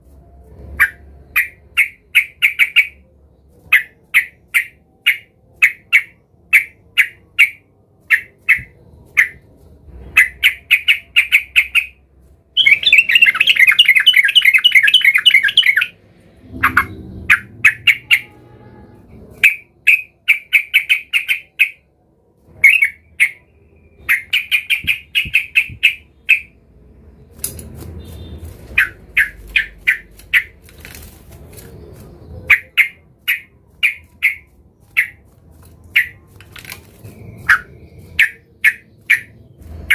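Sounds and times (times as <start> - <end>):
bird chattering calls: 12.6 - 18.3, 28.2 - 30.6, 32.4 - 35.2, 37.4 - 39.9.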